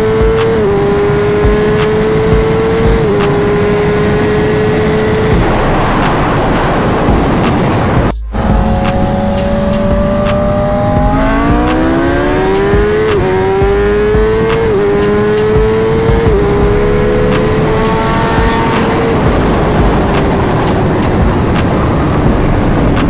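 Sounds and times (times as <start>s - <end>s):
motorbike engine accelerating: 0.0s - 23.0s.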